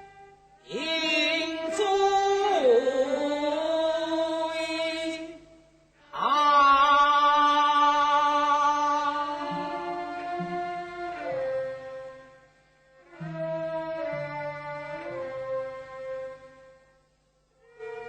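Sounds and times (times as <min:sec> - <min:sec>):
opera singing voice: 0:00.6 - 0:05.5, 0:06.1 - 0:10.8.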